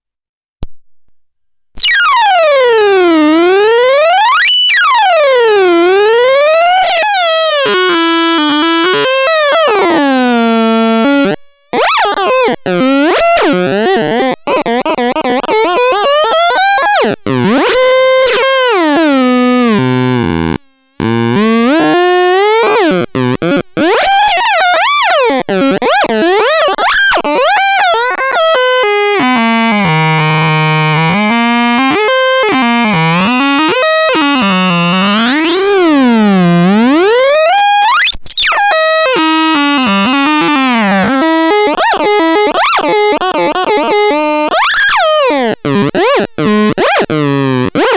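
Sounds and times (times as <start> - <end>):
electronic synthesized tones: 0.6 - 3.6, 27.8 - 47.0.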